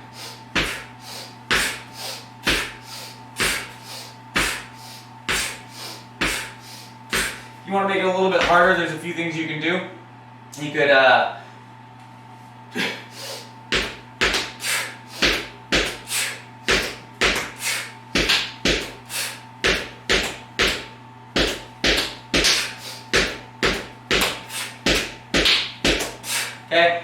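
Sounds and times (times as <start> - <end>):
person breathing out forcefully: 0.0 - 7.5, 12.8 - 20.0, 22.4 - 23.5, 24.2 - 25.1, 25.9 - 26.6
medicine ball thumping on floor: 0.6 - 0.8, 2.4 - 2.8, 4.4 - 4.7, 7.1 - 7.4, 8.4 - 8.8, 13.7 - 14.6, 15.2 - 16.1, 16.7 - 19.0, 19.6 - 26.2.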